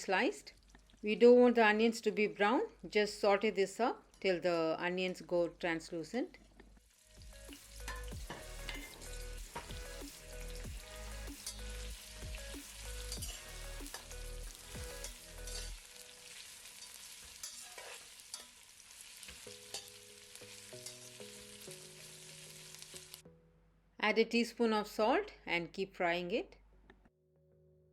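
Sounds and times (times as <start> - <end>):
onions sizzling in hot oil: 6.8 - 23.2.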